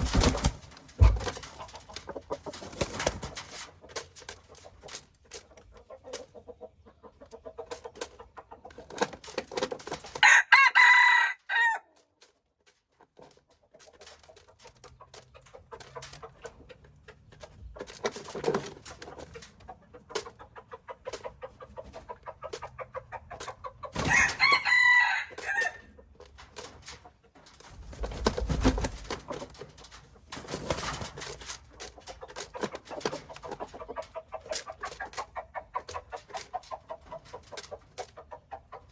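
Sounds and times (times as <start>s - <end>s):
chicken clucking: 0.0s - 38.9s
rooster crowing: 10.2s - 11.8s, 24.1s - 25.8s.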